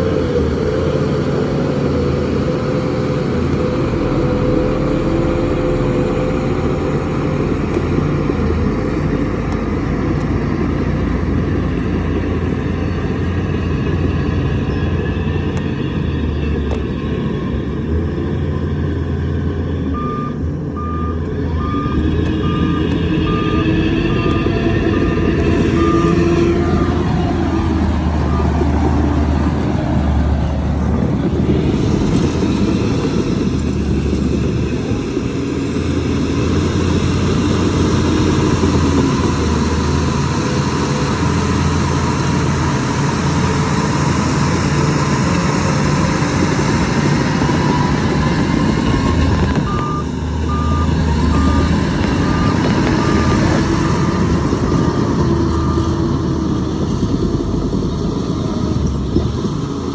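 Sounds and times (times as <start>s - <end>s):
heavy diesel engines droning: 0.0s - 59.9s
reversing alarm beeping: 3.1s - 7.8s, 19.8s - 29.3s, 47.3s - 56.2s.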